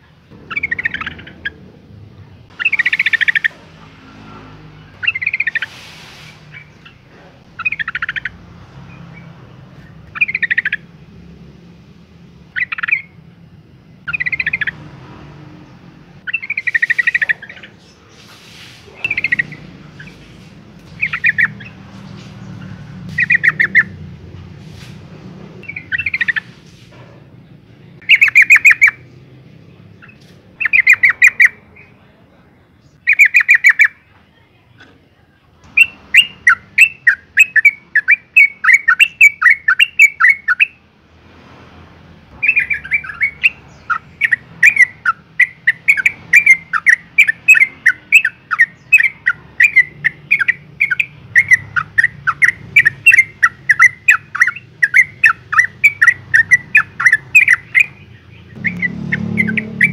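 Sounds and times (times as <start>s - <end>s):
bird chattering call: 0.3s - 1.8s, 2.5s - 11.2s, 12.5s - 13.2s, 14.0s - 14.8s, 16.2s - 24.1s, 25.6s - 26.6s, 28.0s - 29.2s, 29.9s - 32.0s, 32.9s - 34.0s, 35.7s - 40.8s, 42.3s - 59.9s.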